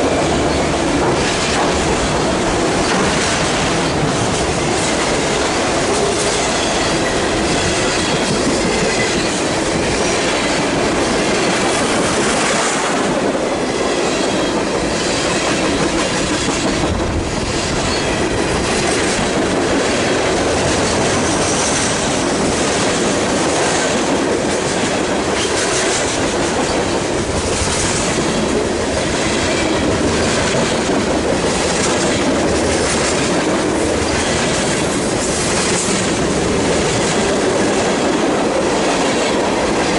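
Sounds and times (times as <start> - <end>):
freight train cars rolling: 0.0 - 39.9.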